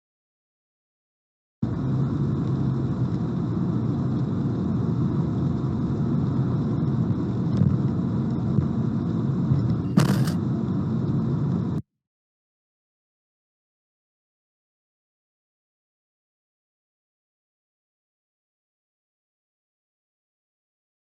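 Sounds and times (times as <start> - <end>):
car driving rumble: 1.6 - 11.8
short sharp noise: 9.9 - 10.4.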